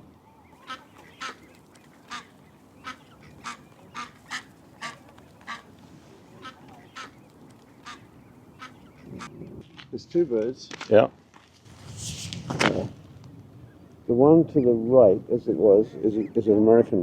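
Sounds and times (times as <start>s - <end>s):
waterfowl calling: 0.4s - 9.4s.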